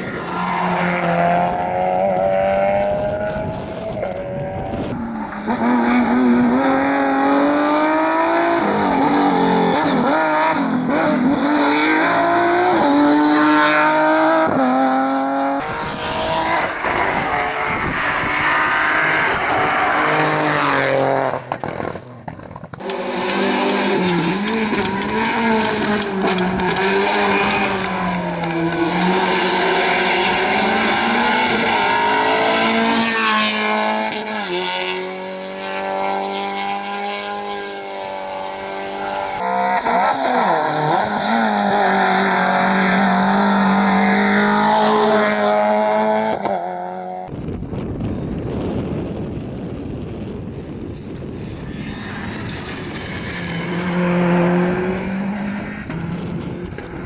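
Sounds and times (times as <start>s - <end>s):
rally car engine revving: 0.0s - 47.3s, 51.0s - 57.0s.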